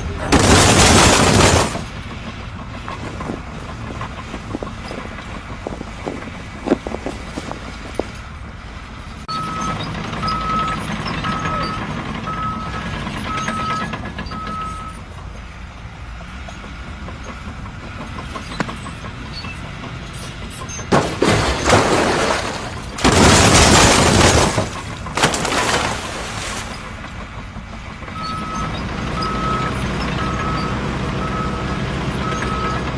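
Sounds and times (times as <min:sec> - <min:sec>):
heavy vehicle engine running: 0:00.0 - 0:32.9
reversing alarm beeping: 0:09.3 - 0:15.0, 0:28.1 - 0:32.9.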